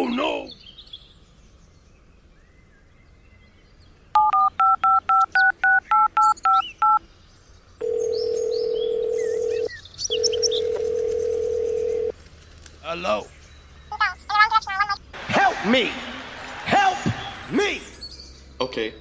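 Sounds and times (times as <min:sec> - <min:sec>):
birds chirping faintly: 0:00.0 - 0:19.0
phone keypad beeps: 0:04.2 - 0:07.0
phone line ringing tone: 0:04.2 - 0:07.0, 0:07.8 - 0:12.1.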